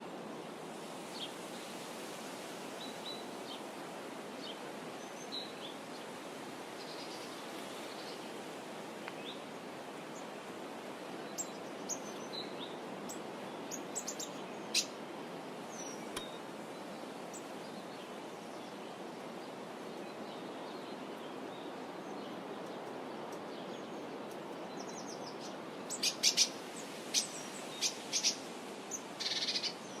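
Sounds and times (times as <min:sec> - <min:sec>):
steady background hiss: 0:00.0 - 0:30.0
small birds chirping: 0:11.3 - 0:18.8, 0:19.8 - 0:30.0.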